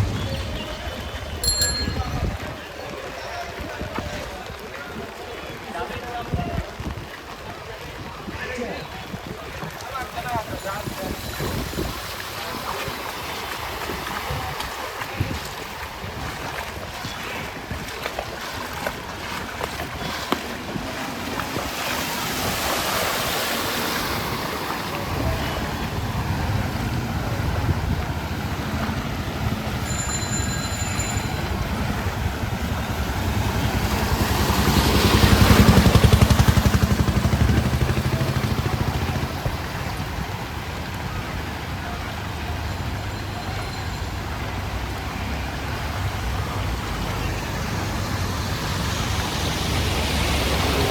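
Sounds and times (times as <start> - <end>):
traffic moving through floodwater: 0.0 - 50.9
water sloshing and splashing: 9.4 - 38.1
vehicle engine hum: 23.0 - 29.9, 30.8 - 42.6.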